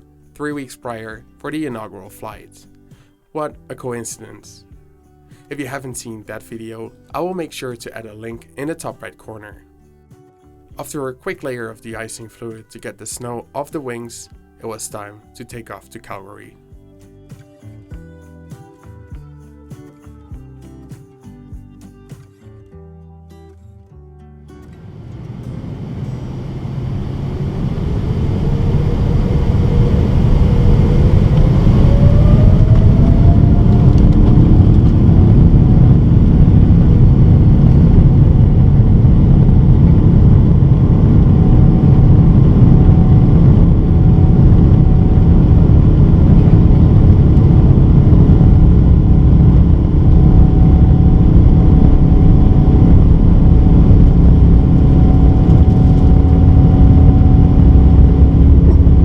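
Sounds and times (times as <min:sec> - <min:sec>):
jet engines spooling up: 0:24.8 - 0:59.0.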